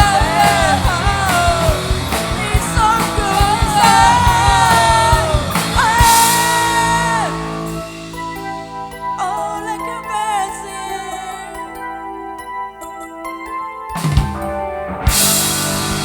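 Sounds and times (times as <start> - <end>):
man singing: 0.0 - 7.8
drums: 0.0 - 10.0, 13.9 - 16.0
live rock band playing: 0.0 - 11.1, 13.9 - 16.0
sustained chord ringing: 0.0 - 16.0.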